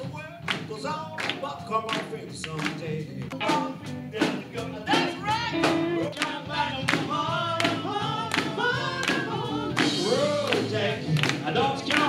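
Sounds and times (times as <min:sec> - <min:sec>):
live funk band playing: 0:00.0 - 0:12.0
person singing: 0:00.0 - 0:12.0
drum hits: 0:03.4 - 0:12.0.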